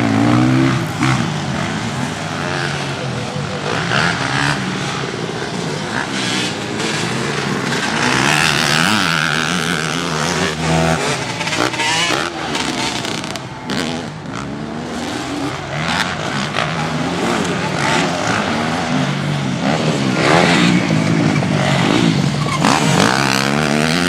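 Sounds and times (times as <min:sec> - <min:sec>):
motocross bike engines revving: 0:00.0 - 0:24.0.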